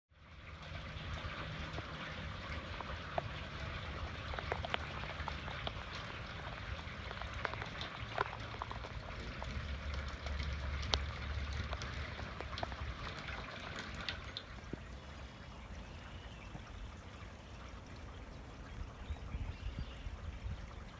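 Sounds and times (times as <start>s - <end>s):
raindrops clicking: 0.4s - 19.3s
steady rain falling: 0.5s - 19.0s.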